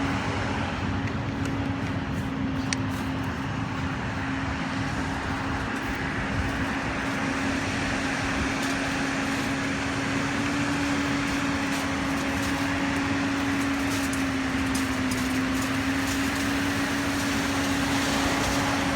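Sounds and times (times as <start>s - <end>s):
pump truck engine droning: 0.0s - 18.9s.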